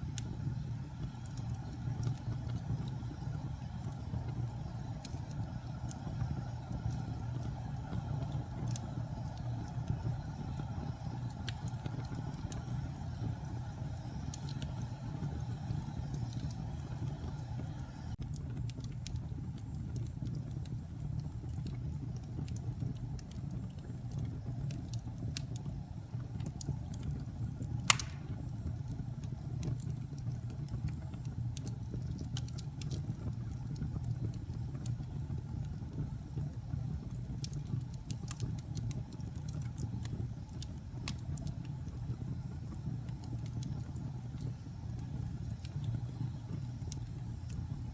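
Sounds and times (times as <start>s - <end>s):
fire crackles: 0.0s - 47.9s
wood fire roaring: 0.0s - 47.9s
loud sharp pop: 27.9s - 28.4s.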